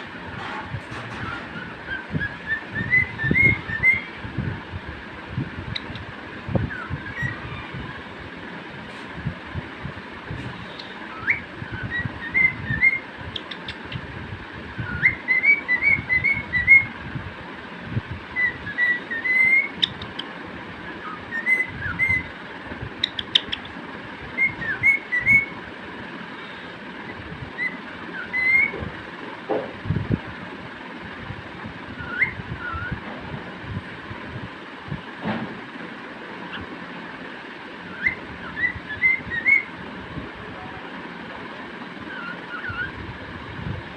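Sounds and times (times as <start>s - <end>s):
cockatiel whistling: 1.5s - 4.2s, 10.8s - 13.7s, 14.8s - 16.9s, 18.3s - 20.2s, 20.8s - 22.3s, 24.4s - 25.6s, 27.6s - 28.8s, 32.0s - 33.0s, 37.9s - 39.7s, 42.1s - 43.0s.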